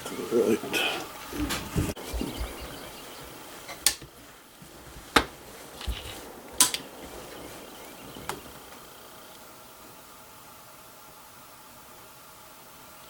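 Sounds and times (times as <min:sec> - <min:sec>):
rifle lock metallic clicks: 0:06.6 - 0:06.9.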